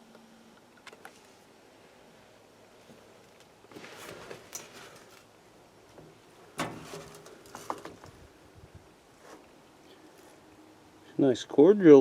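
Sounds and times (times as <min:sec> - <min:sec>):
scuffing and rustling: 0:02.8 - 0:05.3
truck door shutting: 0:06.6 - 0:07.3.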